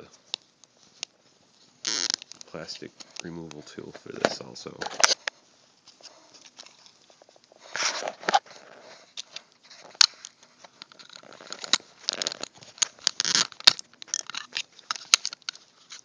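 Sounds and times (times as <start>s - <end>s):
plastic tool scraping plastic: 6.0s - 16.0s.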